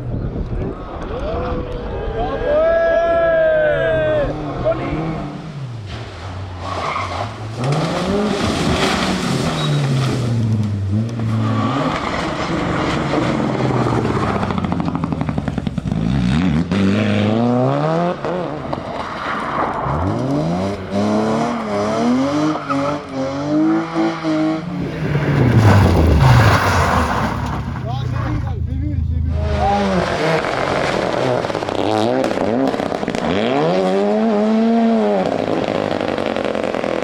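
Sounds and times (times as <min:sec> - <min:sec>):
rally car engine accelerating: 0:03.6 - 0:37.0.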